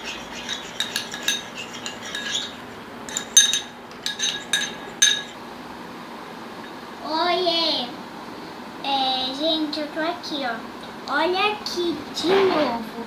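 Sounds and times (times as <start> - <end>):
utensil clinking in container: 0.3 - 5.4.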